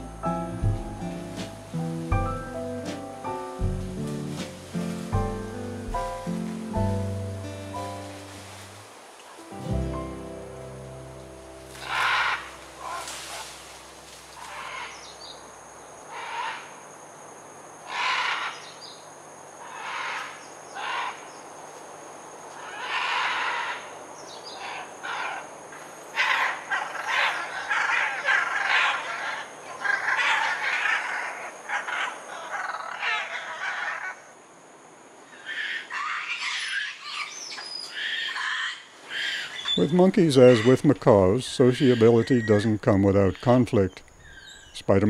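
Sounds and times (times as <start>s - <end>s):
harsh animal calls: 11.7s - 15.4s, 16.1s - 16.8s, 17.8s - 18.8s, 19.6s - 21.3s, 22.6s - 25.5s, 26.1s - 34.4s, 35.3s - 43.6s.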